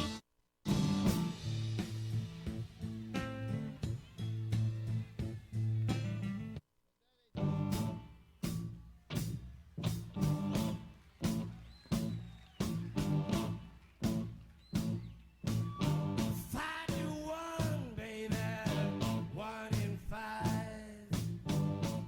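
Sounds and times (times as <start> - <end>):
guitar strumming chords: 0.0 - 6.6, 7.4 - 8.0.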